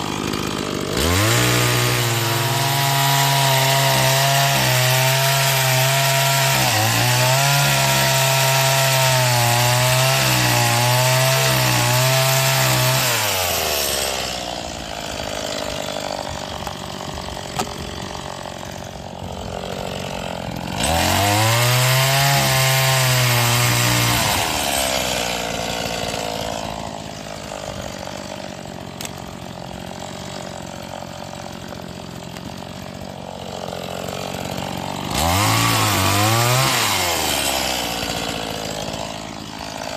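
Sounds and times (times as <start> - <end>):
chainsaw cutting wood: 0.0 - 39.9
chainsaw idling: 0.0 - 39.9.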